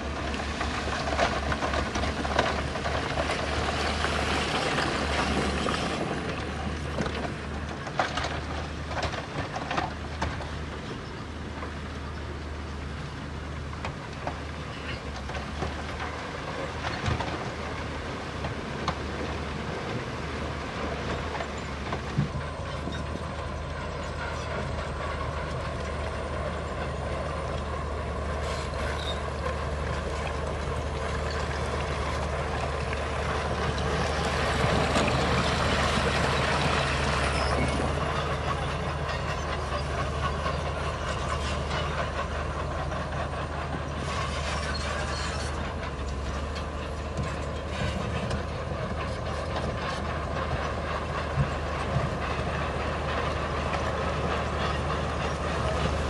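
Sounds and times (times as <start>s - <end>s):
bulldozer diesel engine: 0.0s - 56.0s
crawler tracks clanking and squeaking: 0.0s - 56.0s.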